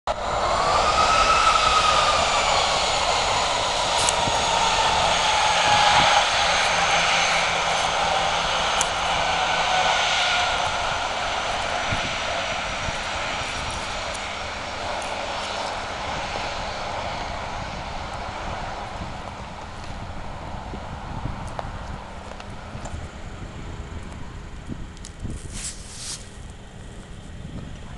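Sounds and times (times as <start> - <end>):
jet engines passing: 0.1 - 27.9.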